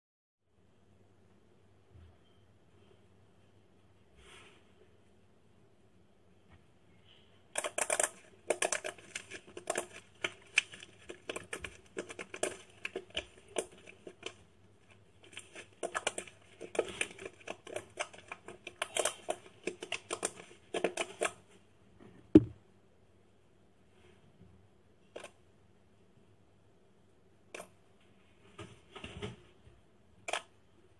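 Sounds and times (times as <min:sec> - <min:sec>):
slime clicking and crackling: 0:07.6 - 0:21.4
loud thump: 0:22.3 - 0:22.6.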